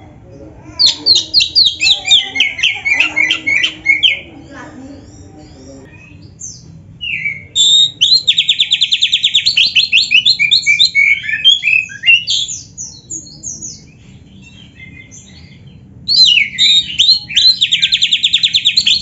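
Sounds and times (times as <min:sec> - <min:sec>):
bird singing whistled phrases: 0:07.0 - 0:13.0, 0:16.1 - 0:19.0.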